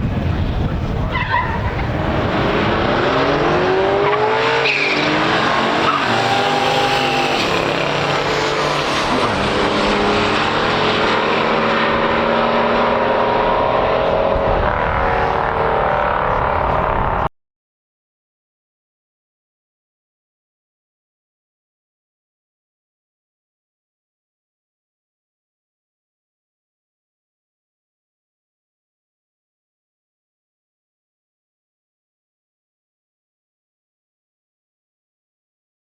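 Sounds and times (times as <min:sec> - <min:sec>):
race car engines at full throttle: 0:00.0 - 0:17.3.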